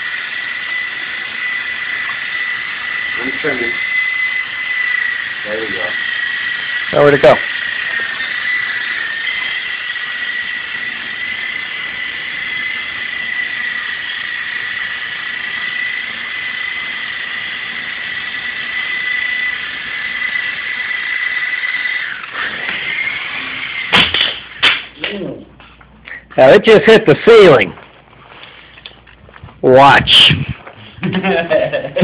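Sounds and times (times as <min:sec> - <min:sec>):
toy helicopter motor whine: 0:00.0 - 0:24.8.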